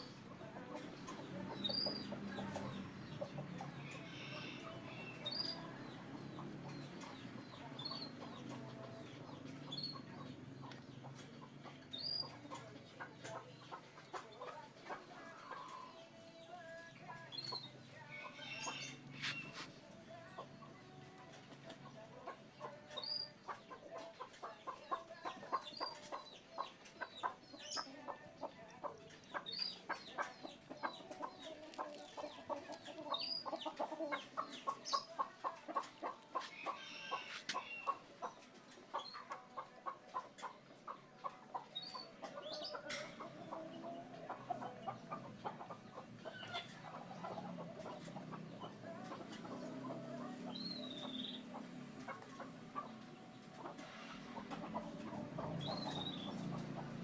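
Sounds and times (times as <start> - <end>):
animal clucking: 0.0 - 57.0.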